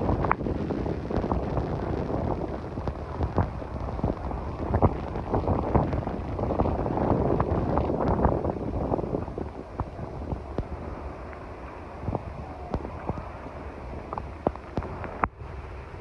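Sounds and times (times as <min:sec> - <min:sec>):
heavy rain: 0:00.0 - 0:16.0
wind buffeting microphone: 0:00.0 - 0:16.0.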